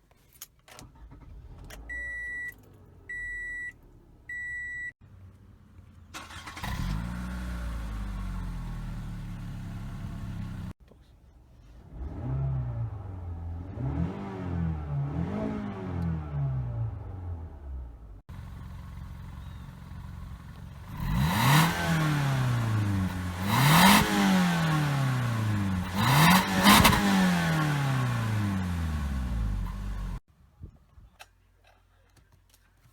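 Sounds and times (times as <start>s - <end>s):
short electronic beeps: 1.9s - 4.9s
car engine revving: 6.2s - 10.8s, 11.9s - 30.2s.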